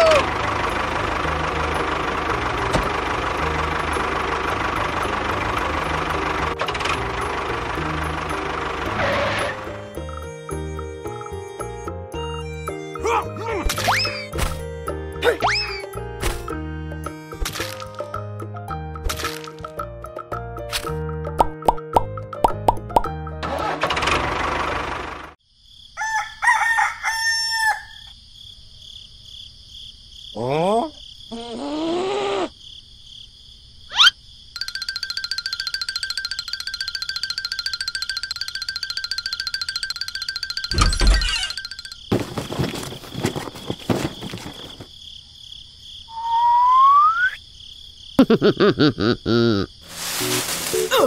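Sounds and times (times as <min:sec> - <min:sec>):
bouncing warbling calls: 0:12.9 - 0:14.6, 0:33.9 - 0:42.2
rooster crowing: 0:26.0 - 0:28.1
insect-like chirring: 0:30.2 - 0:48.4
sharp rising whistle: 0:46.1 - 0:47.4.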